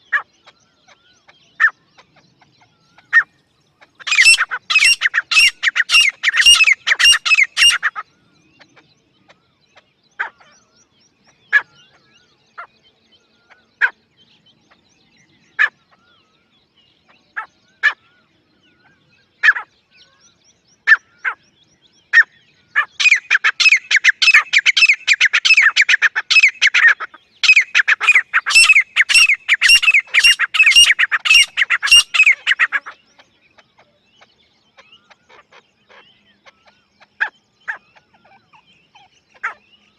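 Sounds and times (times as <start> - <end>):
francolin calling: 0.0 - 8.8, 22.1 - 39.9.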